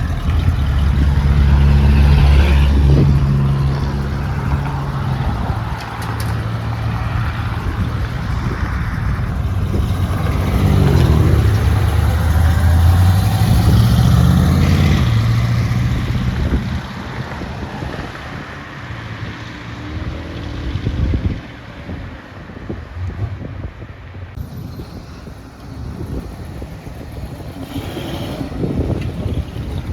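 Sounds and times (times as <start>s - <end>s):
car engine running: 0.0s - 16.9s.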